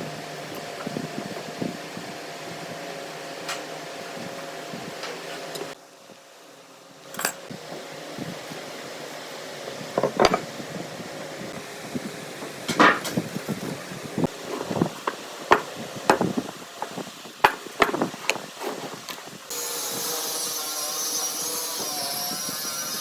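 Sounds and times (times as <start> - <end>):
machine whirring: 19.5 - 23.0.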